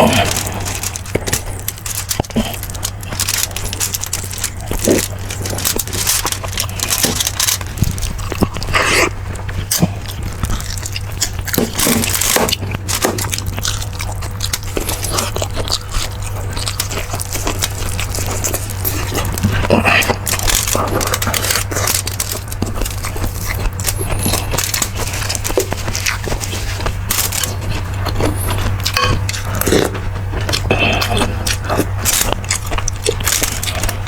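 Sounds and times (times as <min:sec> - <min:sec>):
person chewing and smacking: 0:00.0 - 0:34.0
steady low hum: 0:00.0 - 0:34.0.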